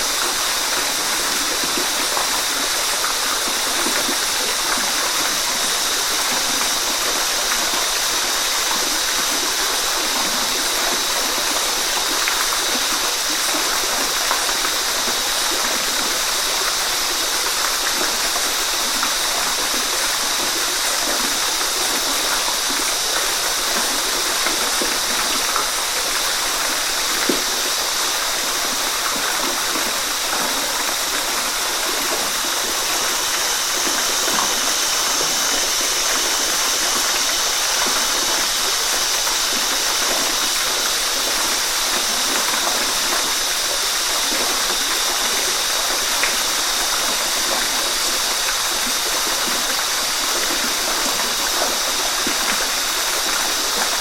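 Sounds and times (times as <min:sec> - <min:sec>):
water splashing and gurgling: 0:00.0 - 0:54.0
waterfall rushing: 0:00.0 - 0:54.0.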